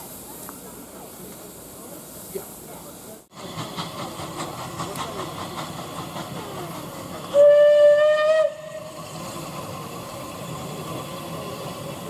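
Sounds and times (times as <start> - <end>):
steam hissing: 0.0 - 12.0
steam locomotive whistle: 7.3 - 9.0.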